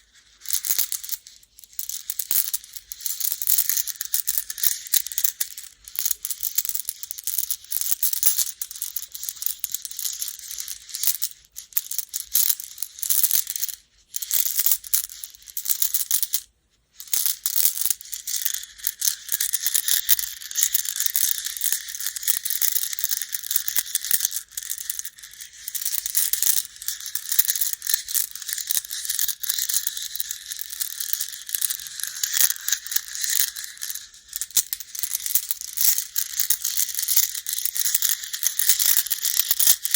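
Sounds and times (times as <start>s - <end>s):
game stones clattering: 18.1s - 39.9s.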